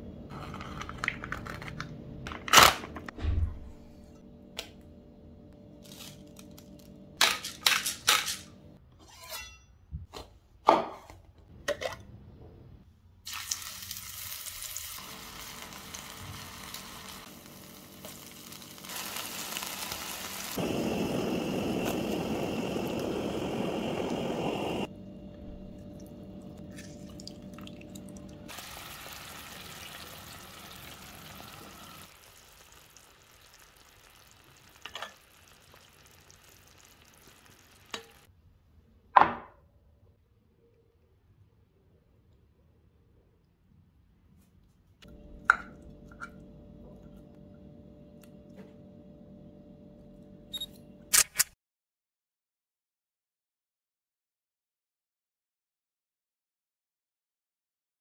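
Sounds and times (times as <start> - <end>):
kitchen knocks and clatters: 9.2 - 12.1
fish sizzling in a skillet: 13.3 - 24.9, 28.5 - 38.3.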